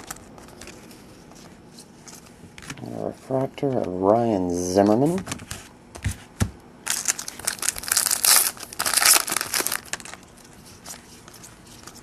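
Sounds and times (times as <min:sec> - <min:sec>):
foil wrapper tearing and crinkling: 0:06.9 - 0:10.2.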